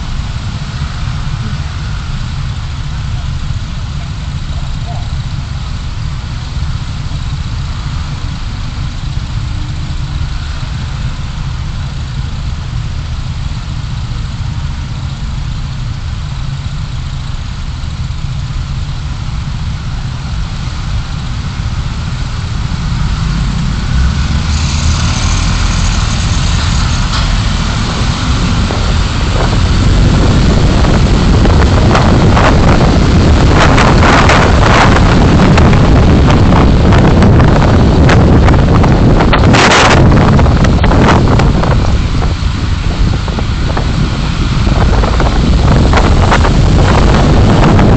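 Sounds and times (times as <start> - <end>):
car engine and road noise: 0.0 - 47.9
gusty wind noise: 19.0 - 47.9.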